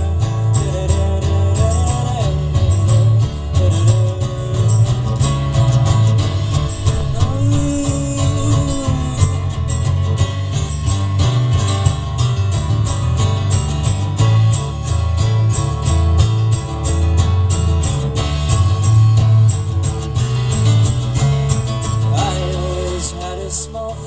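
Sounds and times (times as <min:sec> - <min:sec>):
live rock band playing: 0:00.0 - 0:24.0
fast drum beat: 0:00.9 - 0:19.0.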